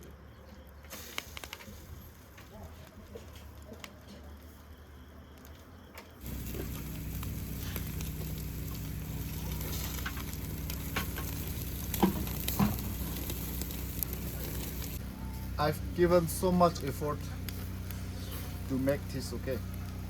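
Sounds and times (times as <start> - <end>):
sharp fire crackles: 0.8 - 5.6, 6.2 - 20.0
chicken sizzling on grill: 0.9 - 2.0, 6.2 - 20.0.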